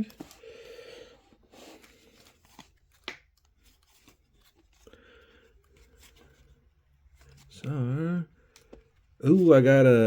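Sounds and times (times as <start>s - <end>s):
trading cards rustling: 0.0s - 7.8s.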